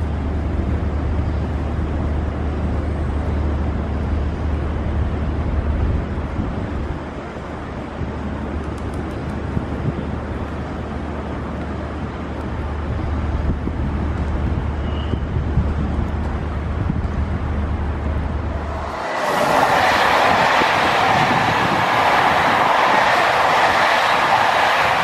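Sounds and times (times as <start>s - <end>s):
train rumbling over steel bridge: 0.0s - 25.0s
passenger train rushing past: 13.6s - 25.0s.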